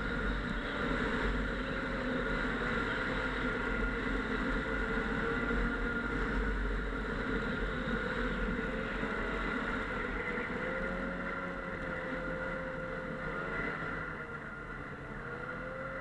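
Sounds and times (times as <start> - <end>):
snowmobile engine running: 0.0 - 16.0.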